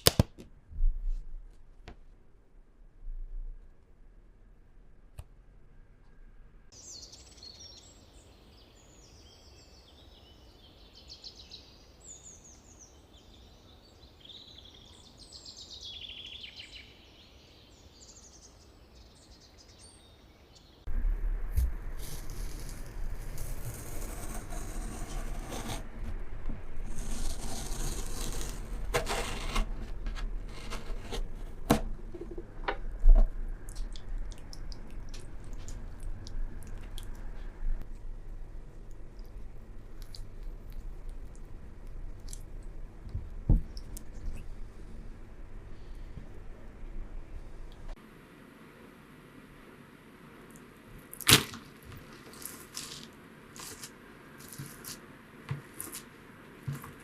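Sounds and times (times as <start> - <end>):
small birds chirping and singing: 6.8 - 20.9
close-up handling and crunching: 51.0 - 57.0.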